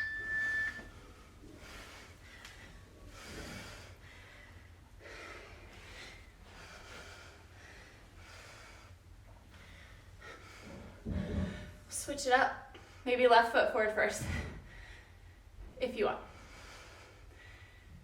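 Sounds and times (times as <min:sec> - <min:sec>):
heavy rapid breathing: 0:01.4 - 0:11.9.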